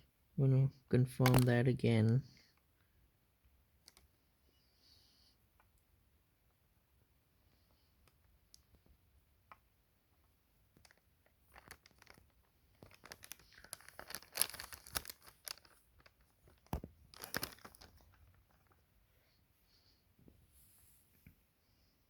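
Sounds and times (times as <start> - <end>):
small objects rustling and clicking: 1.2 - 1.6, 3.8 - 4.2, 10.7 - 18.9.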